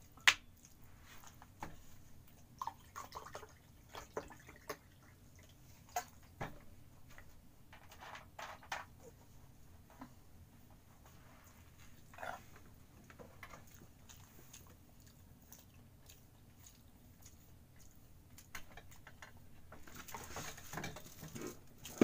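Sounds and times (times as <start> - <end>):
person chewing food: 13.4 - 19.0.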